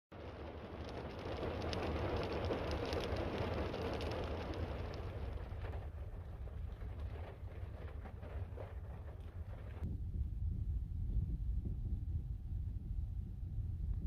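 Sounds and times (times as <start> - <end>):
heavy rain falling: 0.1 - 9.8
low wind rumble: 0.1 - 14.0.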